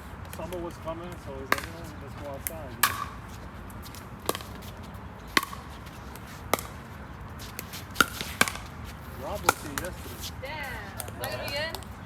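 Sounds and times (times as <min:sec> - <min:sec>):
paddles hitting plastic ball: 0:00.3 - 0:01.8, 0:02.4 - 0:03.2, 0:09.4 - 0:10.0.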